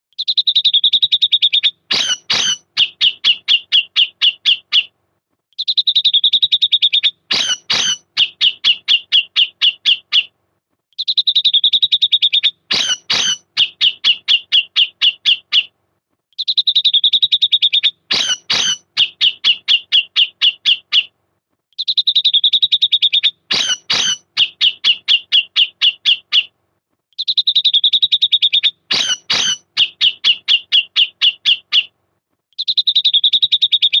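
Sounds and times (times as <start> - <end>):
bulbul calling: 1.9 - 3.3, 7.3 - 8.6, 12.7 - 13.7, 18.1 - 19.1, 23.5 - 24.5, 28.9 - 30.2.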